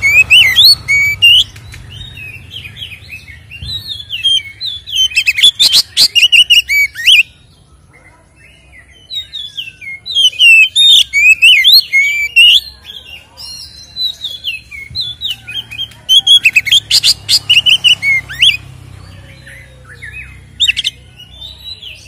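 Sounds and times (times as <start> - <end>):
bird singing whistled chirps: 0.0 - 7.7, 8.4 - 22.0.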